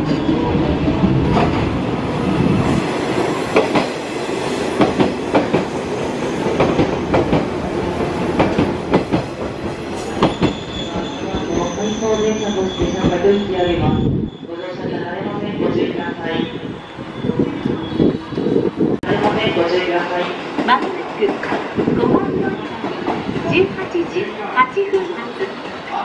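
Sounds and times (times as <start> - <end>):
high wheel squeal: 10.2 - 14.6.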